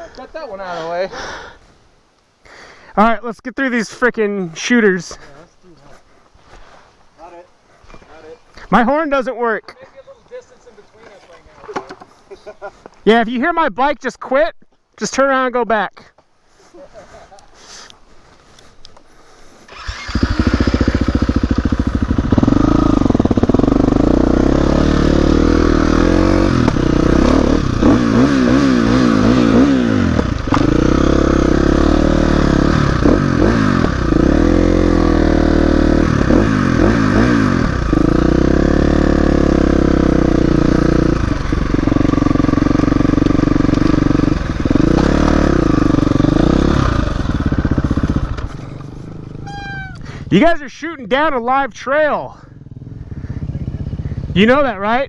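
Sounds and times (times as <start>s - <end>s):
dirt bike engine revving: 19.7s - 50.4s, 52.5s - 54.6s.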